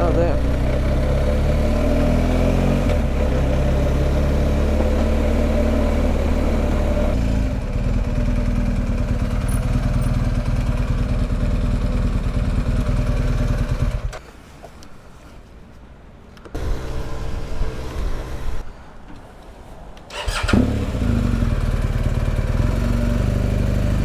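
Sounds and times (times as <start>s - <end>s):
motorcycle engine running: 0.0s - 14.2s, 20.3s - 24.0s.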